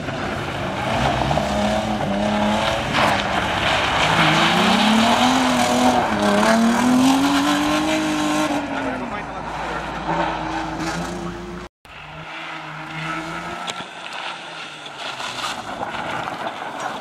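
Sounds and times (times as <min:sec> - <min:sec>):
tyres scrabbling on gravel: 0:00.0 - 0:07.5, 0:13.2 - 0:17.0
car engine revving: 0:00.0 - 0:16.7.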